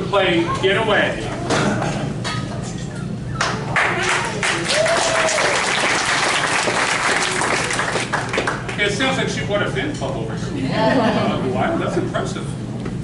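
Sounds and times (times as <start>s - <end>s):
audience applauding: 3.4s - 8.8s
whoop of cheering: 4.0s - 5.9s.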